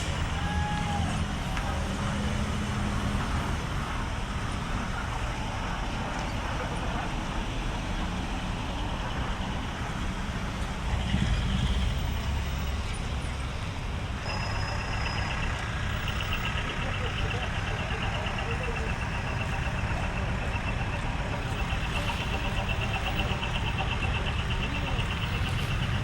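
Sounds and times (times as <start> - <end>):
truck engines running: 0.0 - 26.0
steady high tone: 14.2 - 26.0.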